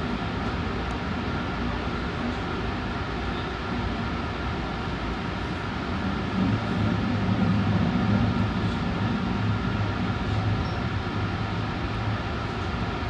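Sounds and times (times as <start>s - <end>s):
electric train rumble: 0.0s - 13.0s
low hum: 5.4s - 13.0s.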